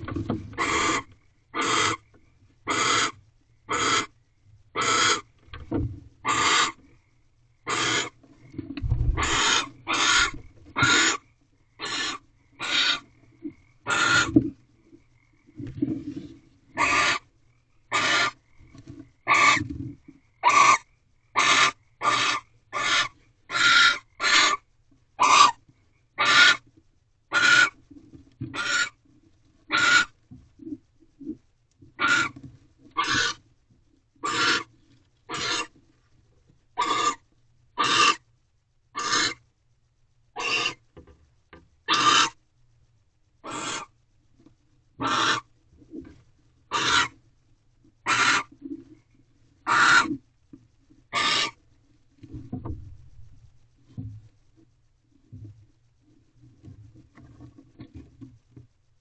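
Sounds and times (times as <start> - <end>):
owl hissing rasping calls: 0.6 - 2.0, 2.7 - 4.1, 4.8 - 5.3, 6.2 - 6.8, 7.6 - 8.2, 9.2 - 13.1, 13.8 - 14.4, 16.8 - 17.3, 17.9 - 18.4, 19.2 - 19.6, 20.4 - 24.6, 25.2 - 25.6, 26.2 - 26.6, 27.3 - 27.8, 28.5 - 29.0, 29.7 - 30.2, 32.0 - 32.4, 33.0 - 33.4, 34.2 - 34.7, 35.3 - 35.7, 36.8 - 37.2, 37.8 - 38.2, 38.9 - 39.4, 40.4 - 40.8, 41.9 - 42.4, 43.4 - 44.0, 45.0 - 45.5, 46.7 - 47.2, 48.0 - 48.5, 49.6 - 50.2, 51.1 - 51.6.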